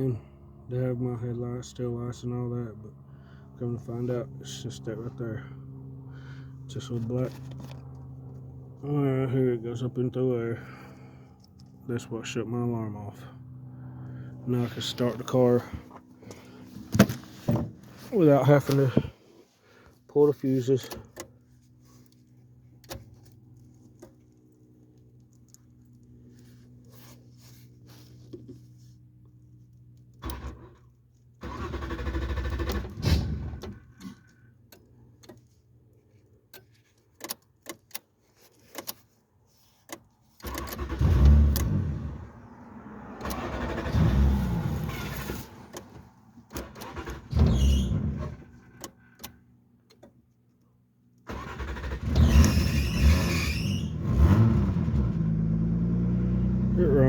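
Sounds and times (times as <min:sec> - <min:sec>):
starter cranking engine: 0:30.1 - 0:34.4, 0:40.4 - 0:42.2, 0:43.2 - 0:49.4, 0:51.3 - 0:54.9.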